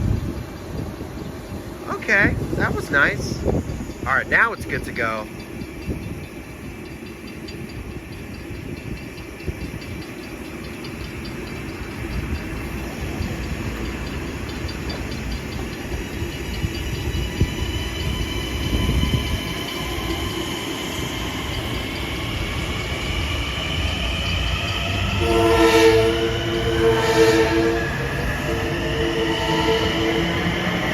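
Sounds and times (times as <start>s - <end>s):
wheels rumbling on rails: 0.0s - 30.9s
electric train motors whining: 2.7s - 30.9s
train horn chord: 25.2s - 30.8s.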